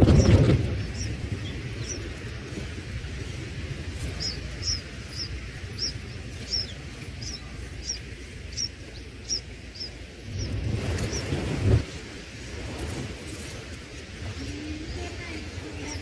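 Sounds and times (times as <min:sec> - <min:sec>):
low outdoor rumble: 0:00.0 - 0:16.0
high bird chirps: 0:04.0 - 0:11.4.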